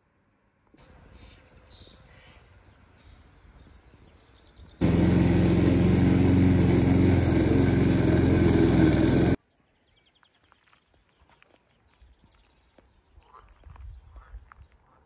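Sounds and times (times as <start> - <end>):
small engine running: 4.8 - 9.4.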